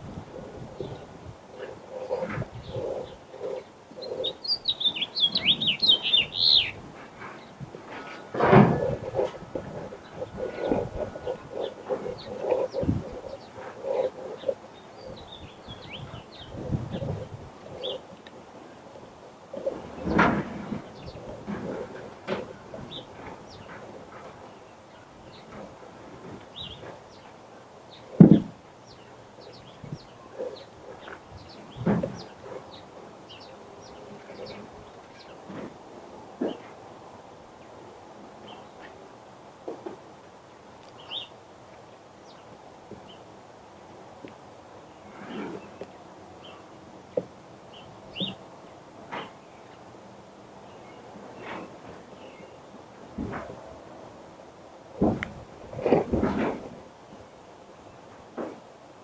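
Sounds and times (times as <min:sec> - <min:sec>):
birds chirping: 0:00.0 - 0:36.8, 0:40.8 - 0:41.4, 0:44.2 - 0:49.9
songbird warbling chirps: 0:00.3 - 0:18.3, 0:40.9 - 0:41.4.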